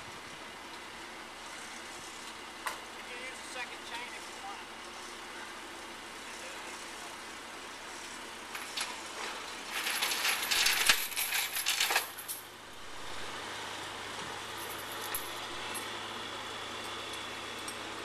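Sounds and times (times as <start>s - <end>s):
vehicle rumble: 0.0s - 18.0s
metallic clinking and rattling: 9.6s - 12.5s, 14.6s - 15.9s.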